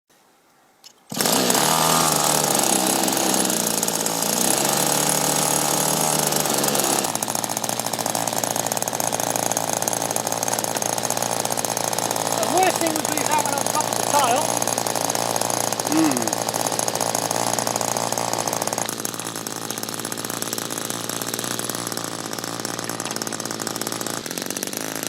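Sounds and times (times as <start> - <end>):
drone propellers buzzing: 1.1 - 24.9.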